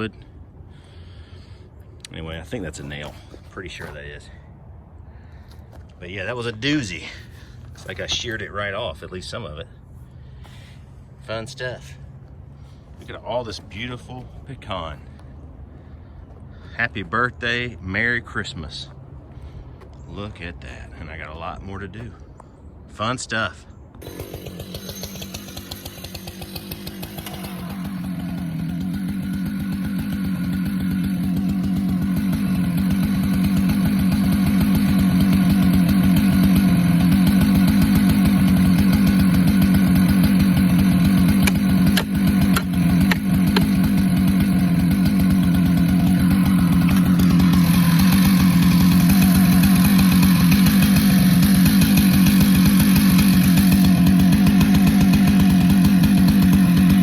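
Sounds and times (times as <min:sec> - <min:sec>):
chainsaw cutting wood: 0:24.0 - 0:57.0.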